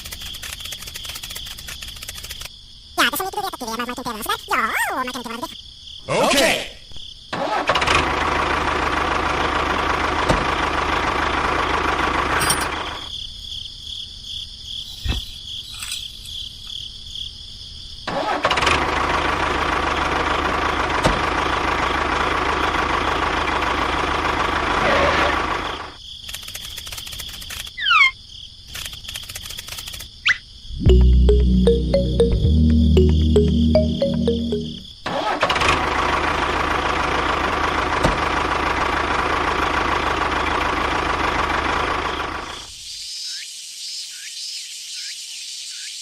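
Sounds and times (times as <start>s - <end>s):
tractor engine running: 7.4s - 13.1s, 18.4s - 25.9s, 35.2s - 42.6s.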